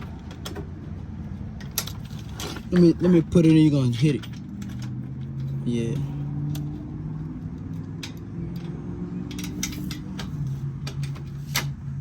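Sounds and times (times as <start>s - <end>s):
clicks and taps of tools: 4.1s - 6.8s, 7.5s - 11.8s.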